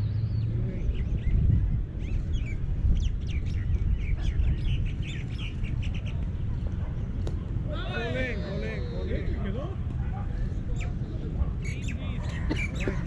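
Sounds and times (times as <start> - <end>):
small birds chirping: 0.0 - 7.3, 10.7 - 13.0.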